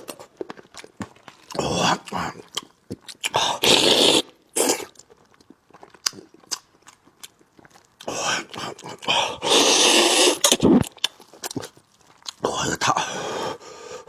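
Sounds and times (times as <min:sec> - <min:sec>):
person slurping and sucking food: 0:03.2 - 0:06.6, 0:07.7 - 0:12.4.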